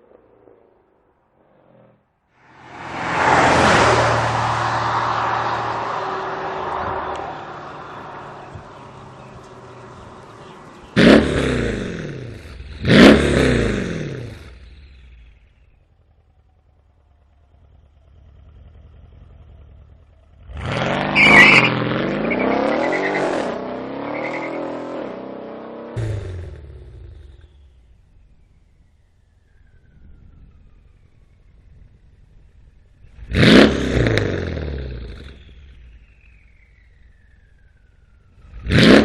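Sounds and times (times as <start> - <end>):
car engine revving: 1.5 - 16.5, 17.5 - 27.6, 33.0 - 36.1, 37.1 - 39.0.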